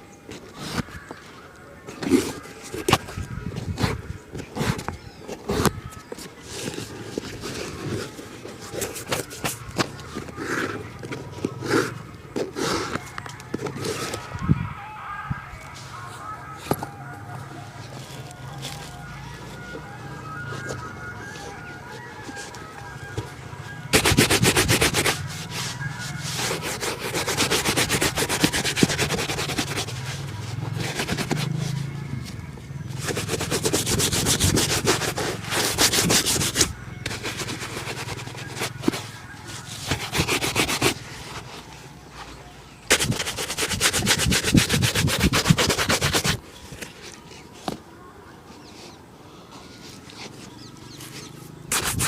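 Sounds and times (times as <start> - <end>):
shoe being buffed with rubbing strokes: 2.0 - 14.2, 23.9 - 41.6, 42.9 - 46.4, 49.7 - 52.0.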